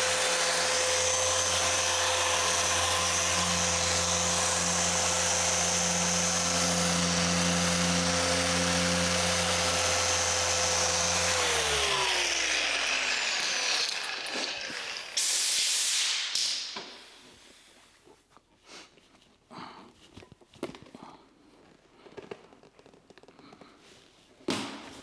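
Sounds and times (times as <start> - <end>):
polisher running and spinning down: 0.0 - 15.4
brief hiss: 15.2 - 17.0.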